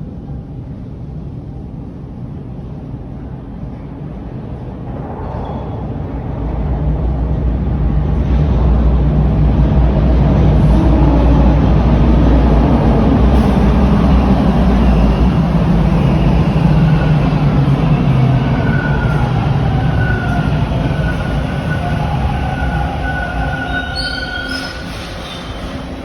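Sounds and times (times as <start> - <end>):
subway train rumbling: 0.0 - 26.0
wheel squeal: 19.9 - 25.9.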